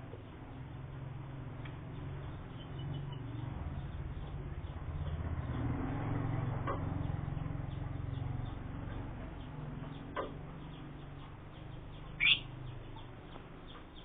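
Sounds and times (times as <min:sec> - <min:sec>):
steady low rumble: 0:00.0 - 0:13.0
lovebird chirps: 0:12.0 - 0:12.5.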